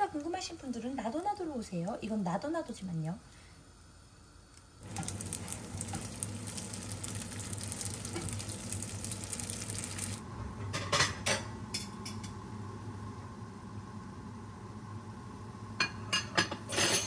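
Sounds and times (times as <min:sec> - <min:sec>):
food sizzling in hot oil: 0:04.8 - 0:10.2.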